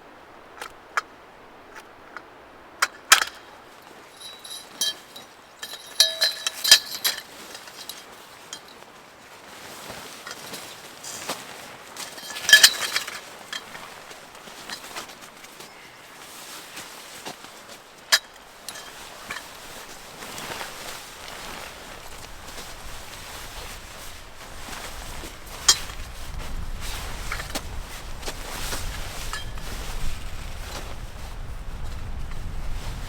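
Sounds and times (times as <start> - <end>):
hard objects clicking and clinking: 4.1 - 8.7, 12.1 - 14.0.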